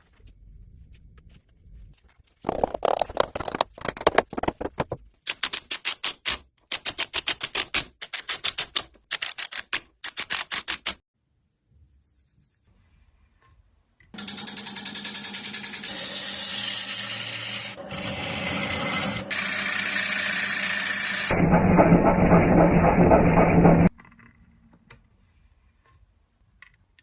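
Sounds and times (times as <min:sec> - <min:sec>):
power tool running: 0:14.2 - 0:23.9.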